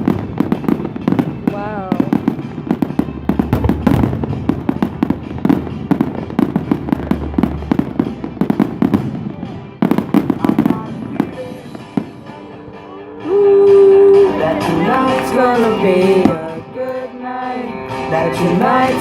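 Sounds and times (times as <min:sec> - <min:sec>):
fireworks popping and crackling: 0:00.0 - 0:12.5, 0:14.2 - 0:16.8.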